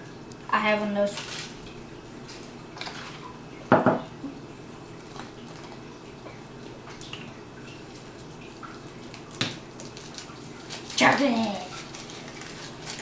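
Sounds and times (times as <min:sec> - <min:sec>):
faint clicks and rustles: 0:06.6 - 0:13.0.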